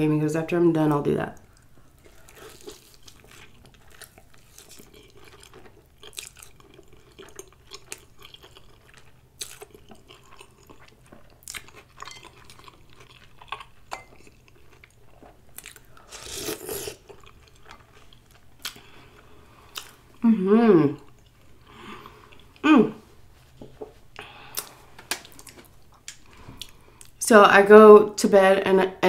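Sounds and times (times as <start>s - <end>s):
chewing and wet mouth smacks: 1.5s - 15.9s.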